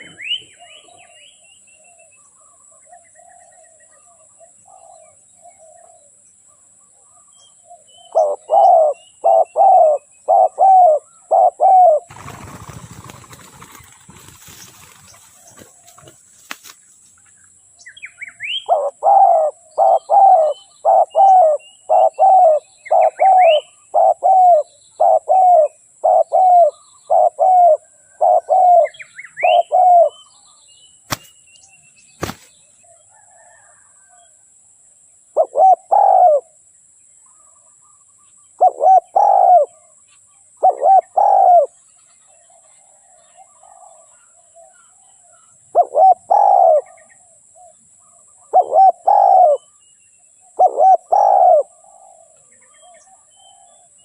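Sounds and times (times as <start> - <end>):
small birds chirping: 0.0 - 34.4
dove cooing: 7.7 - 16.2, 18.4 - 30.2, 35.4 - 36.5, 38.6 - 39.9, 40.6 - 41.8, 43.0 - 49.8, 50.5 - 53.9.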